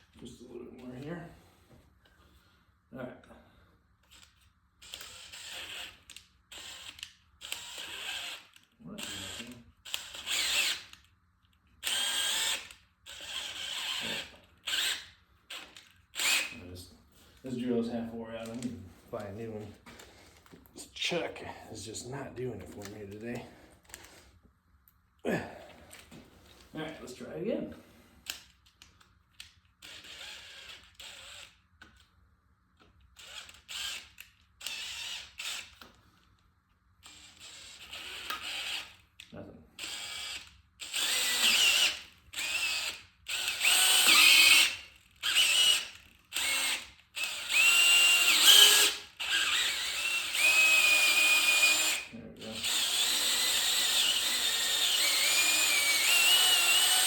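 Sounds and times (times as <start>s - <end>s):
power drill drilling into metal: 4.8s - 11.0s, 11.8s - 16.6s, 29.8s - 31.6s, 33.2s - 35.8s, 37.0s - 39.0s, 39.8s - 57.0s.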